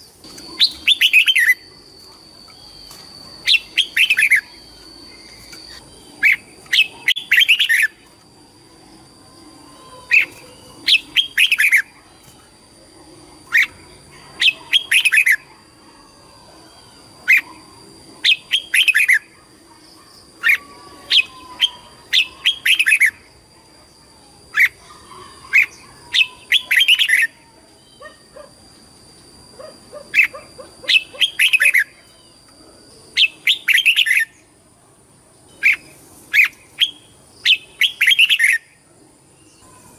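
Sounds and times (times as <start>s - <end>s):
bird singing whistled phrases: 0.3s - 1.7s, 2.5s - 8.0s, 10.0s - 11.9s, 33.2s - 34.4s, 35.6s - 38.7s.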